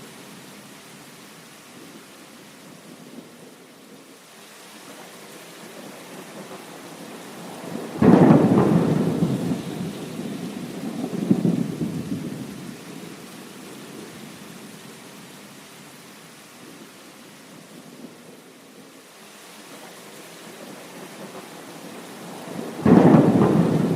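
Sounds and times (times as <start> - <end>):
steady rain: 0.0 - 23.9
thunder rumbling: 5.8 - 13.1, 20.6 - 23.9.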